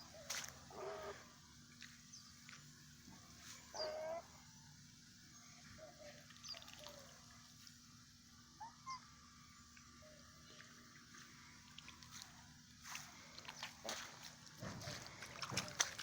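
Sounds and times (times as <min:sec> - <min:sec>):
goose calling softly: 0:00.0 - 0:01.3
faint small birds chirping: 0:00.0 - 0:16.0.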